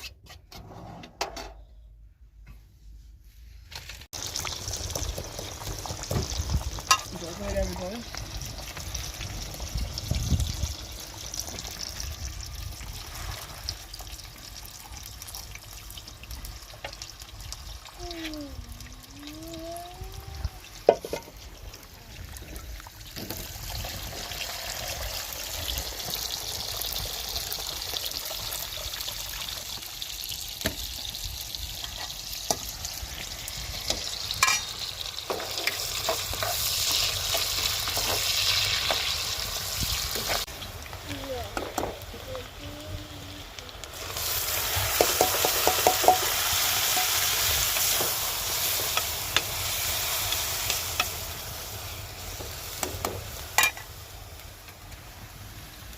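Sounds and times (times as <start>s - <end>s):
food sizzling in a pan: 4.0s - 55.9s.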